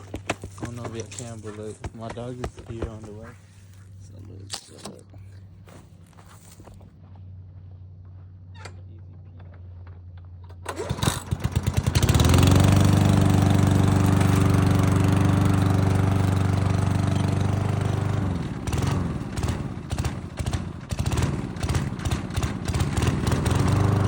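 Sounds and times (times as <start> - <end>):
lawn mower engine running: 0.0 - 6.8, 10.4 - 24.0
engine pull-start sputtering: 10.5 - 15.7.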